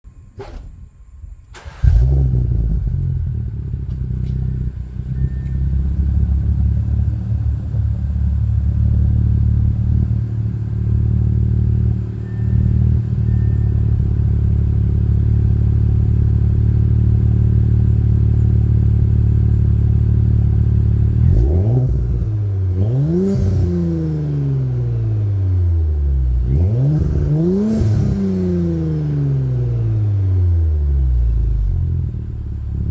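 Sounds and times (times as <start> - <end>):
car engine starting and idling: 0.1 - 32.9
car engine revving: 1.5 - 18.0, 19.0 - 32.9.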